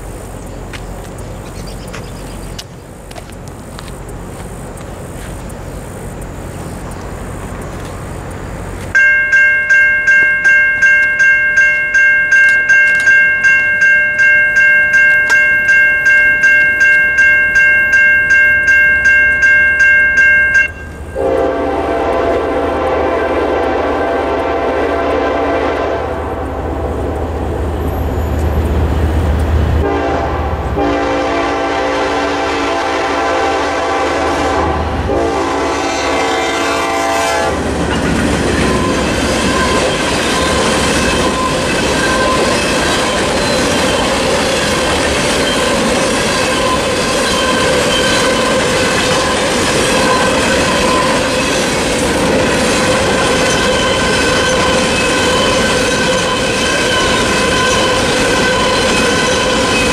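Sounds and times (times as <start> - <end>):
locomotive horn blasts: 18.2 - 26.7, 29.8 - 37.6
wheels clattering over rails: 37.6 - 59.9.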